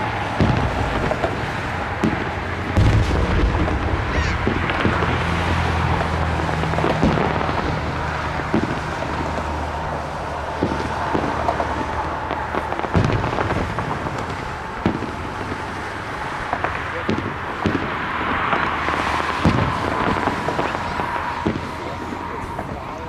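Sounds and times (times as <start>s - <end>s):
background rumble: 0.0s - 23.0s
fireworks bangs: 0.0s - 23.0s
low drone: 0.0s - 23.0s.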